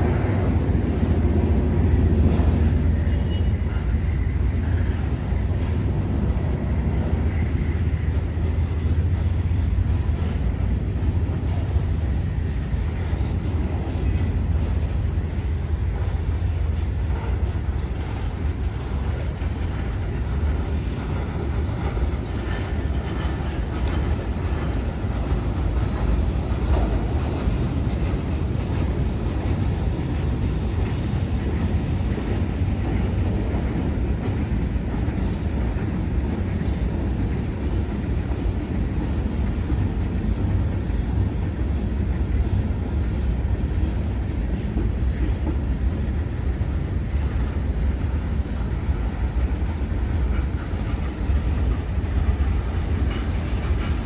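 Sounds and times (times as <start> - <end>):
train passing rumble: 0.0 - 54.0.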